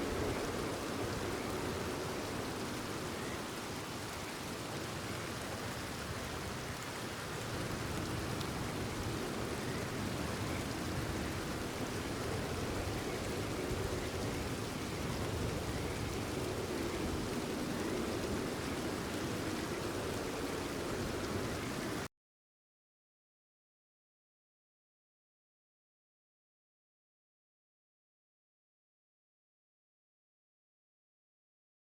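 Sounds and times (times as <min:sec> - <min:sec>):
steady rain falling: 0:00.0 - 0:22.1.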